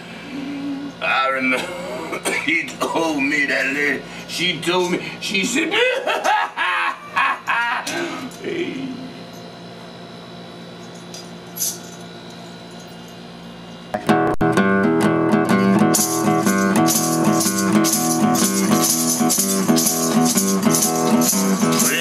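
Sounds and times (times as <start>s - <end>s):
rattle shaking: 10.9s - 12.0s, 15.8s - 22.0s
guitar strumming chords: 13.9s - 22.0s.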